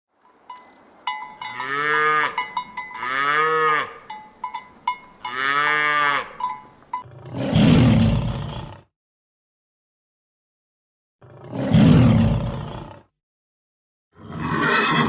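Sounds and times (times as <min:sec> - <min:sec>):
cowbell clanking: 0:00.2 - 0:07.1
cow mooing: 0:01.1 - 0:07.1
loud rough low roar: 0:07.1 - 0:08.9, 0:11.2 - 0:13.1.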